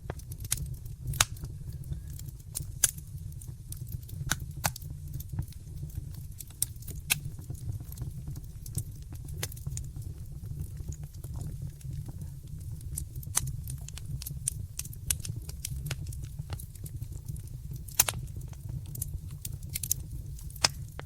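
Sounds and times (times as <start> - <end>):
low fire rumble: 0.0 - 21.0
wood fire crackling and popping: 0.0 - 21.0.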